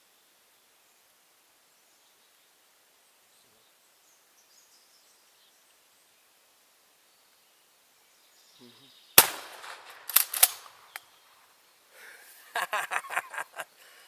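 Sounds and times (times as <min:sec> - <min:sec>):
shotgun blast: 0:09.2 - 0:10.9.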